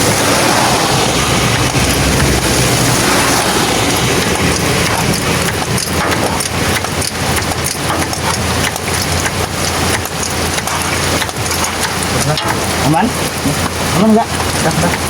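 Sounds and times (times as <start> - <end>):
rain falling: 0.0 - 15.0
sharp taps: 4.2 - 12.8.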